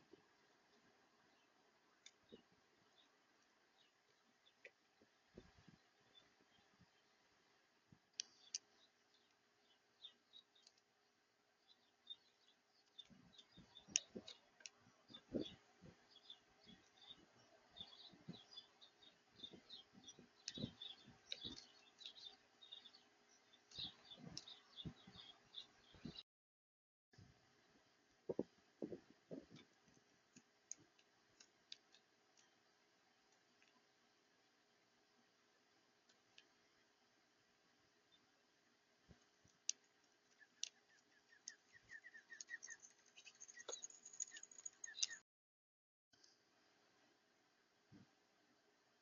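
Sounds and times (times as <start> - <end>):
small birds chirping: 0.0 - 26.2, 27.6 - 45.2.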